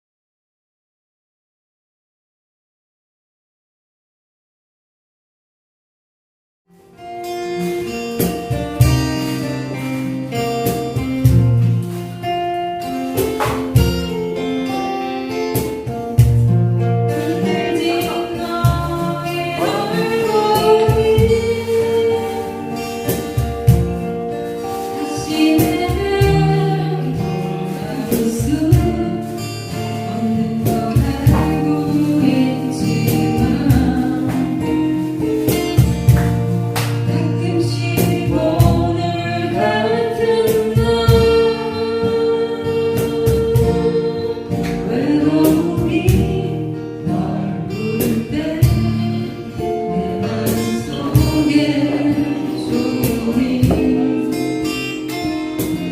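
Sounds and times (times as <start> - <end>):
strummed acoustic guitar: 6.7 - 55.9
person singing: 17.1 - 23.2, 24.8 - 35.0, 37.1 - 55.0.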